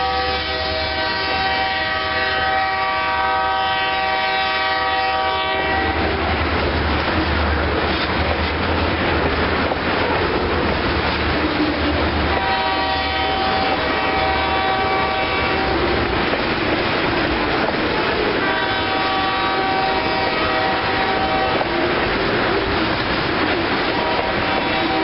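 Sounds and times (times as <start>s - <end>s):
train horn blasts: 0.0s - 6.5s, 12.2s - 16.1s, 18.2s - 22.0s, 23.8s - 25.0s
train wheels on rails: 0.0s - 25.0s.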